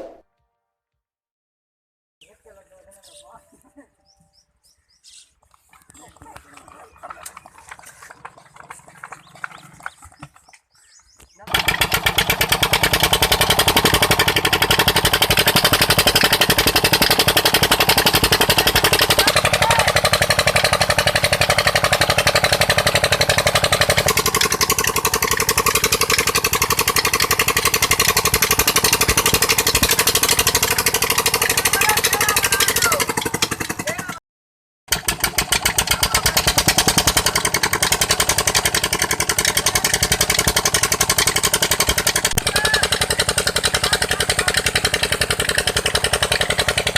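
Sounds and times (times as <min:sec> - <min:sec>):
engine running steadily: 0:11.4 - 0:34.2, 0:34.9 - 0:46.9.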